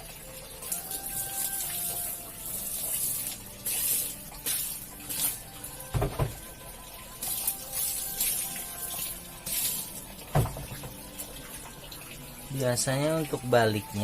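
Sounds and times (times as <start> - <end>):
water spraying onto carpet: 0.7 - 5.5, 7.2 - 10.0.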